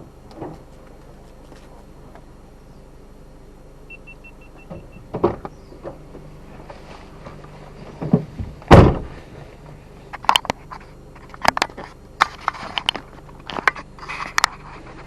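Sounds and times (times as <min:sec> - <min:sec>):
vehicle engine idling: 0:00.0 - 0:15.0
clunks and knocks: 0:00.3 - 0:00.7, 0:04.6 - 0:09.5
short high beeps: 0:03.9 - 0:05.0.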